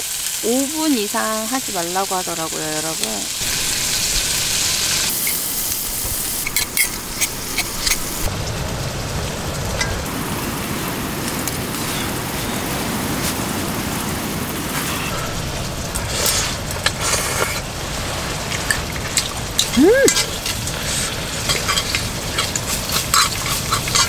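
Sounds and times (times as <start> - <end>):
food sizzling in skillet: 0.0 - 13.5, 15.0 - 24.0
low rumble: 3.4 - 20.8
scissors and tongs clicking: 21.5 - 24.0.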